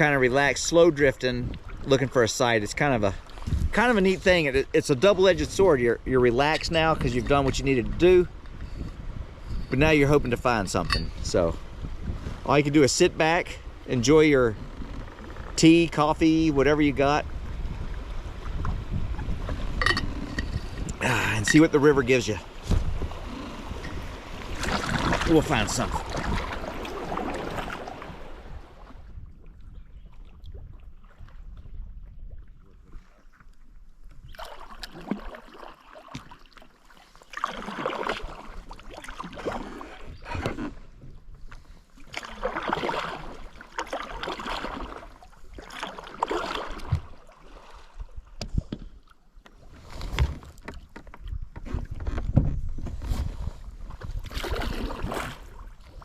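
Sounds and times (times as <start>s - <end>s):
kayak paddle splashing in water: 17.3s - 29.2s, 34.2s - 51.9s, 53.0s - 56.0s.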